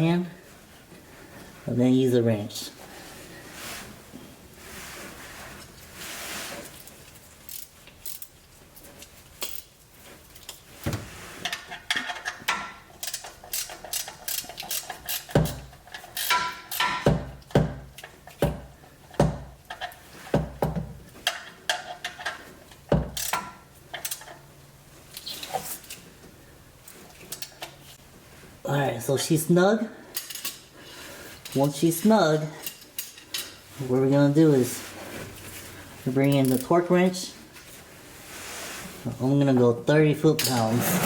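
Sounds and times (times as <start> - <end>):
ratchet wrench clicking: 7.5 - 8.3, 13.0 - 15.4, 16.0 - 16.9, 23.2 - 23.4.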